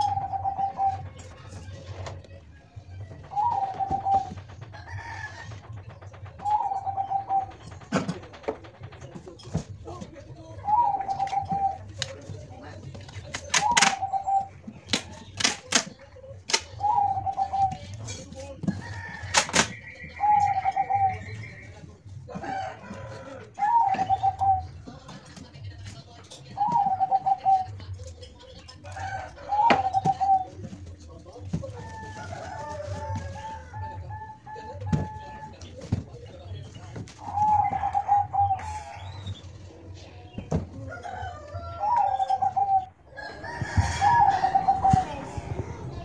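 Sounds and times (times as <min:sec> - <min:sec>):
dove cooing: 0:00.0 - 0:02.2, 0:03.0 - 0:05.5, 0:06.3 - 0:09.0, 0:10.6 - 0:12.4, 0:13.5 - 0:14.8, 0:16.7 - 0:17.9, 0:20.1 - 0:21.6, 0:22.5 - 0:24.9, 0:26.6 - 0:27.9, 0:29.0 - 0:30.8, 0:37.1 - 0:40.4, 0:41.0 - 0:46.0.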